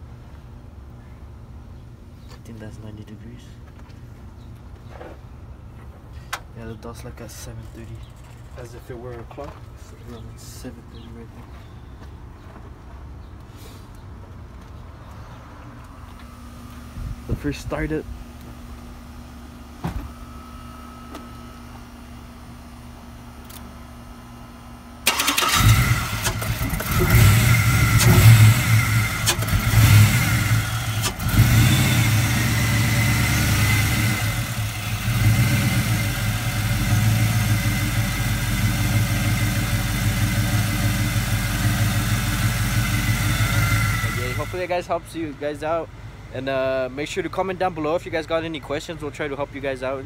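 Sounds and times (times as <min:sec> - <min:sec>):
truck engine starting and idling: 0:25.0 - 0:50.0.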